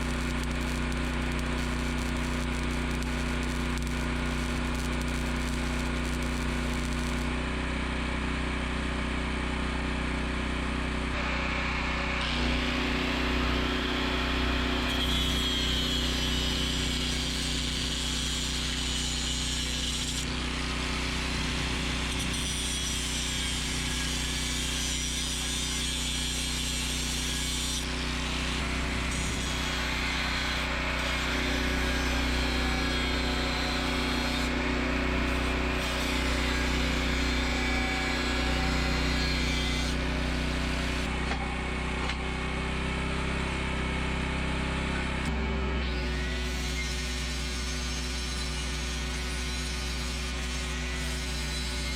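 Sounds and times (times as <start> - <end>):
portable generator humming: 0.0 - 7.4
power tool whining on steel: 0.0 - 10.4, 11.0 - 51.9.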